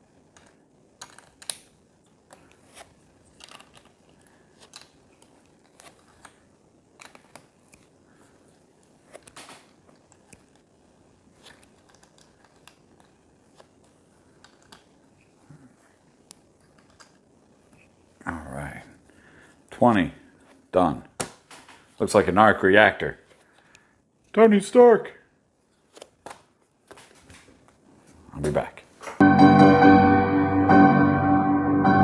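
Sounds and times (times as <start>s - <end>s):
plastic bricks clicking together: 0.3s - 1.7s, 3.3s - 5.3s, 11.4s - 13.2s.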